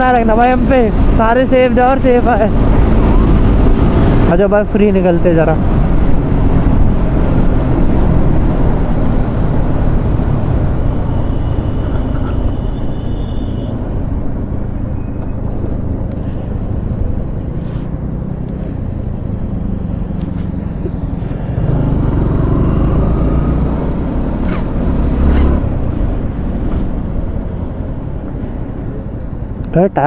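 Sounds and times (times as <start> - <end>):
wind noise: 0.0 - 12.6
traffic: 0.0 - 30.0
motorcycle engine: 13.6 - 29.7
short sharp hissing: 24.3 - 25.9.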